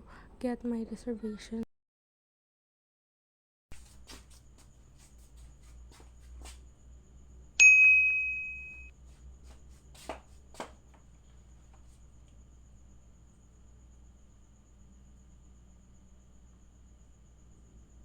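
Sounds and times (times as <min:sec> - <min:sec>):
faint low hum: 0:03.8 - 0:18.0
bright metallic ding: 0:07.6 - 0:08.9.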